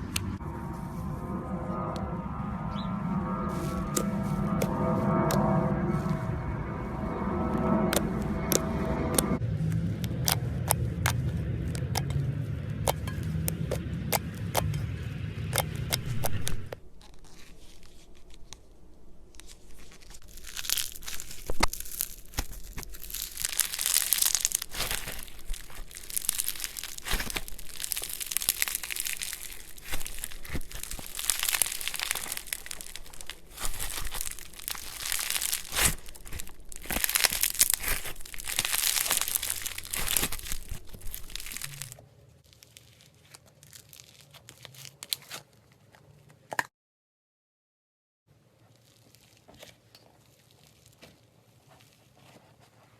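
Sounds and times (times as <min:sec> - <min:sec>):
low hum: 0:00.0 - 0:42.0
slime crackling: 0:07.1 - 0:45.4
slime popping and clicking: 0:20.5 - 0:42.0.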